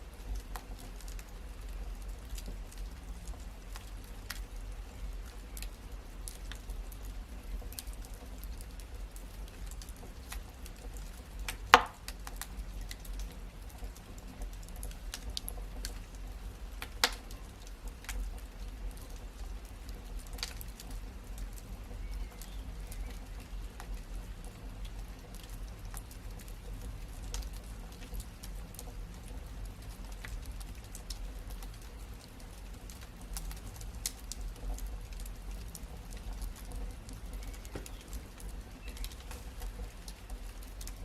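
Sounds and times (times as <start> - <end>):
wood fire crackling: 0.0 - 41.0
loud fire pops: 11.4 - 12.5.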